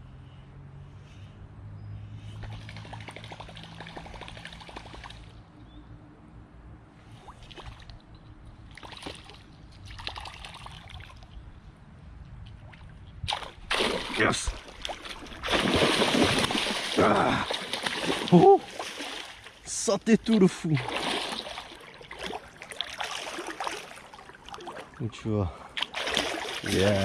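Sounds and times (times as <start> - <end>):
water trickling and splashing: 2.4 - 5.5, 7.0 - 11.5, 12.4 - 27.0.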